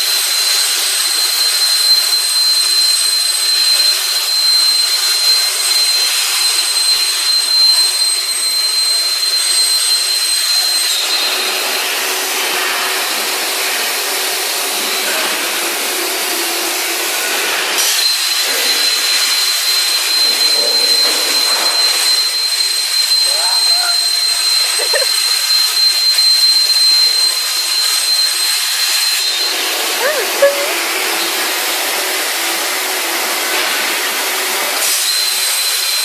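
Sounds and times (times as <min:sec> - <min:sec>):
metal-cutting machine hissing: 0:00.0 - 0:36.0
thin high whine: 0:18.0 - 0:30.8.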